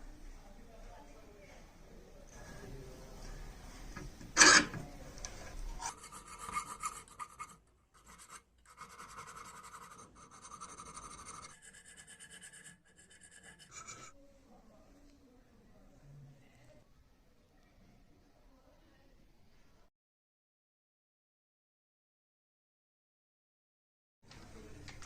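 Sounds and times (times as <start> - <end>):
abrasive rubbing on metal: 4.4 - 4.8, 5.7 - 14.1.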